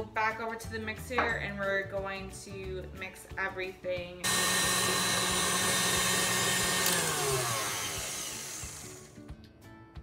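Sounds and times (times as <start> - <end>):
stand mixer motor whine: 4.3 - 9.2.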